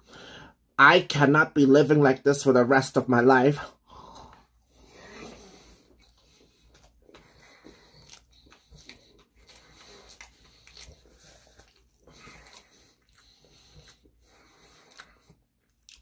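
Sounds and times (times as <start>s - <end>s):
breathing through the nose: 0.0s - 0.6s, 3.8s - 15.5s
faint chewing: 4.0s - 16.0s.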